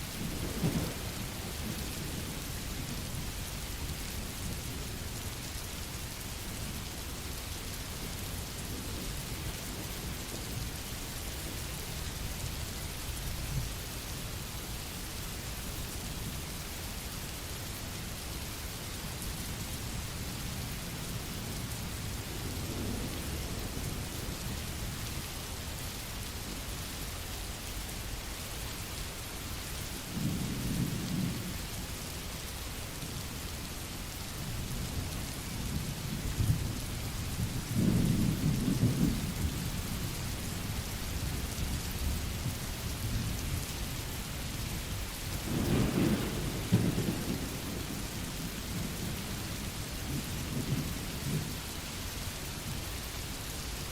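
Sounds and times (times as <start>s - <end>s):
rain hissing: 20.8s - 53.9s
thunder rolling: 45.4s - 49.3s.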